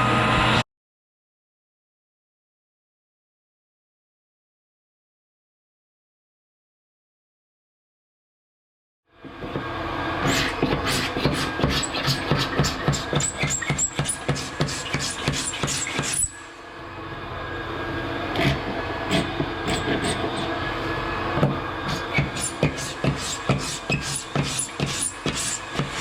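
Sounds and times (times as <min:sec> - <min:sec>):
floor sanding machine hum: 0:13.8 - 0:26.0.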